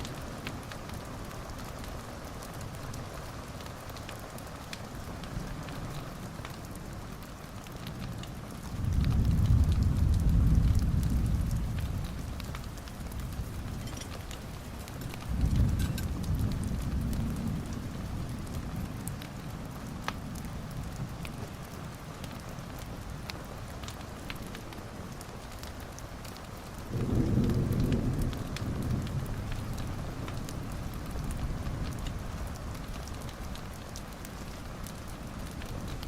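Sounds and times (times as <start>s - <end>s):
sharp drips or crackles: 0.0s - 36.0s
steady rain falling: 0.0s - 36.0s
low rolls of thunder: 8.6s - 21.7s, 26.8s - 36.0s.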